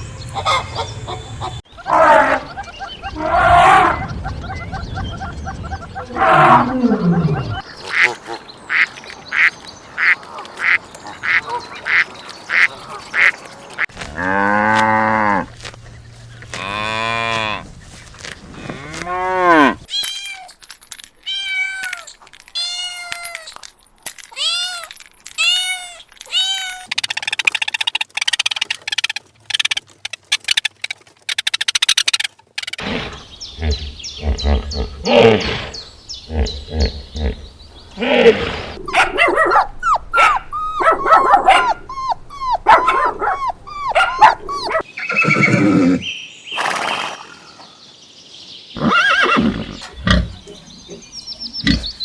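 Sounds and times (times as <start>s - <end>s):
animal calls: 0.3s - 8.8s, 25.5s - 47.6s.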